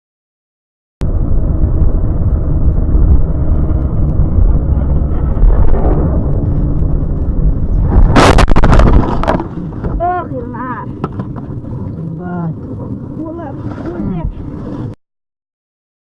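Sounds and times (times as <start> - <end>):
car road and engine rumble: 1.0 - 15.0
loud car crash: 7.5 - 10.0.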